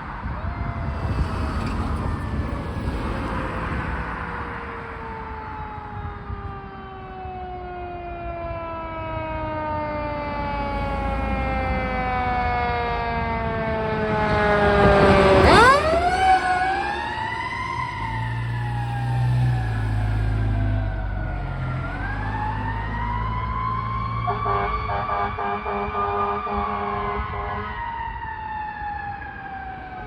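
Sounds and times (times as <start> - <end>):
fire truck siren wailing: 0.0 - 30.0
truck engine: 0.8 - 6.4, 9.2 - 27.4.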